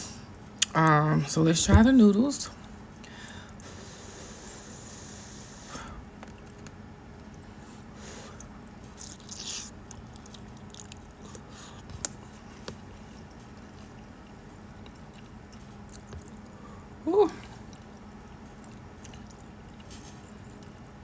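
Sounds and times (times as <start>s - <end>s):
soft chewing: 6.1s - 21.0s.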